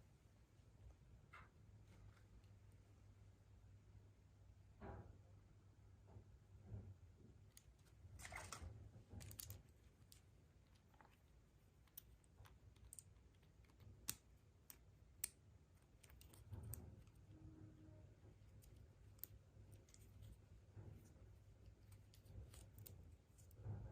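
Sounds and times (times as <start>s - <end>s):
plastic toy parts clicking: 11.8s - 17.3s.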